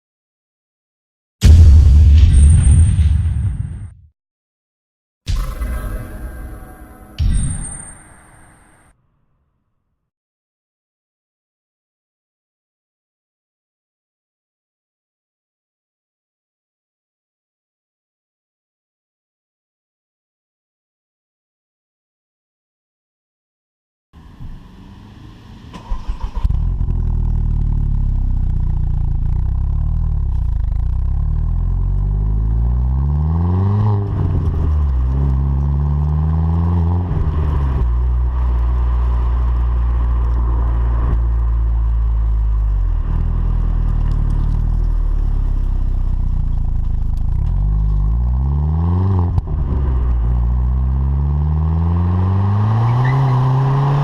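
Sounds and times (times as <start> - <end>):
car engine starting and revving: 24.2 - 54.0.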